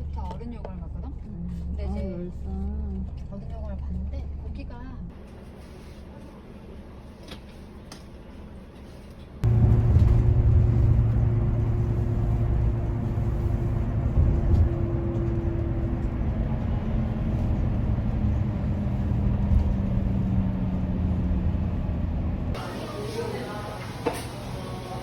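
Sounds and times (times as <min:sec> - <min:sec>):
vehicle engine running: 0:09.4 - 0:22.7.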